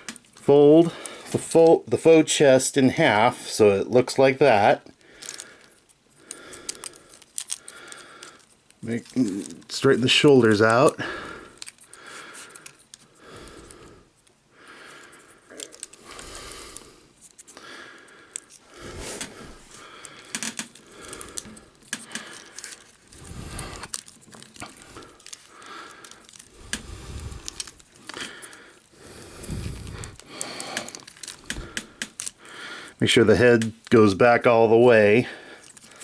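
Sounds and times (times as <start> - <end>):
plastic toy parts clicking: 5.2 - 13.0, 15.0 - 16.2, 18.3 - 18.6, 20.1 - 28.9, 29.8 - 32.4, 35.6 - 36.0.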